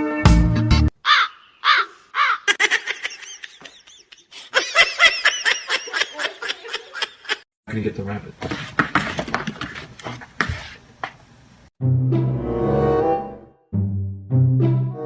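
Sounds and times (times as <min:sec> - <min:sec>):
bird calling: 0:01.0 - 0:04.3
music track: 0:11.8 - 0:15.0.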